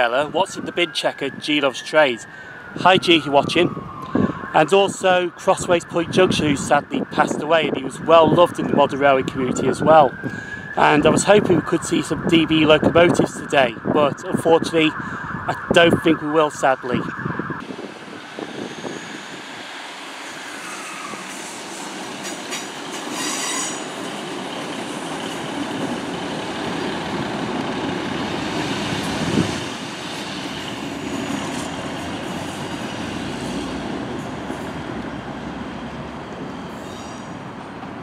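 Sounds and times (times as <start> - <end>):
train rumbling on rails: 17.6 - 38.0.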